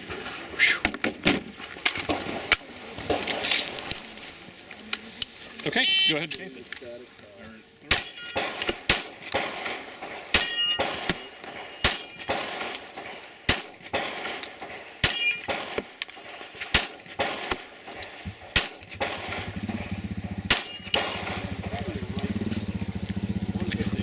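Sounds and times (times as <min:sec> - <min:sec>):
gunshots: 0:02.0 - 0:04.0, 0:07.9 - 0:21.9
steel target clanging: 0:07.9 - 0:19.5, 0:20.5 - 0:21.7.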